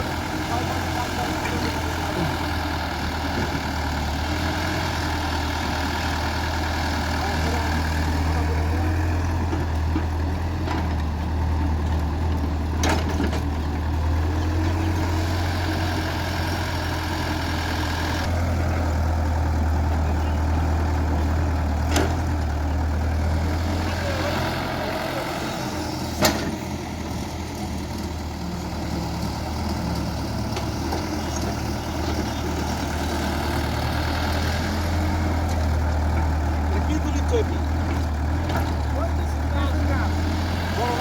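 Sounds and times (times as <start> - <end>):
diesel engine humming: 0.0 - 41.0.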